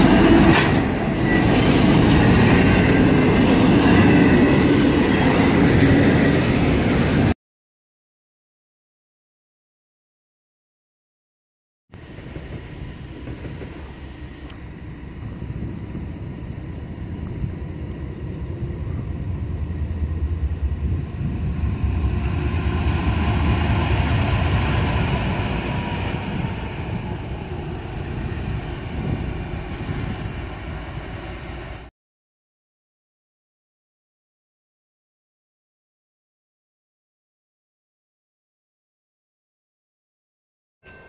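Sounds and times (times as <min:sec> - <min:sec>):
wheel and rail noise: 0:00.0 - 0:07.3, 0:12.0 - 0:31.9
train passing rumble: 0:00.0 - 0:07.4, 0:12.0 - 0:31.9.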